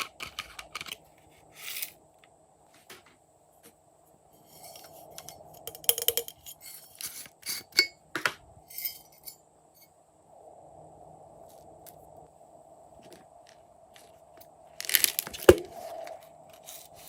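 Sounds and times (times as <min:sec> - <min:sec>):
small hard objects clinking: 0:04.6 - 0:07.2, 0:13.9 - 0:15.7
crackly rustle: 0:11.4 - 0:17.0.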